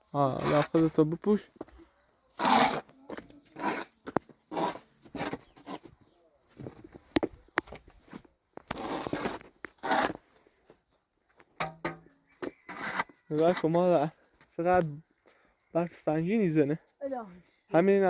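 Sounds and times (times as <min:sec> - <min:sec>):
rustling and crunching: 0:00.1 - 0:13.8.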